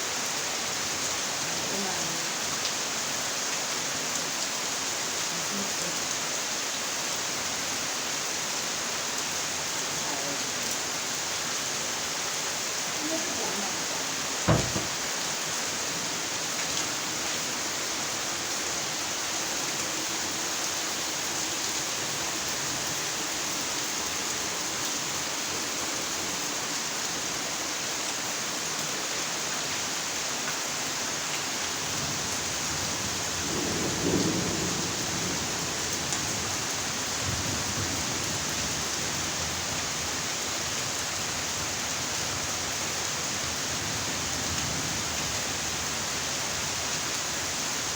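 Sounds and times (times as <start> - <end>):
steady rainfall: 0.0 - 47.9
sharp thump: 14.5 - 15.0.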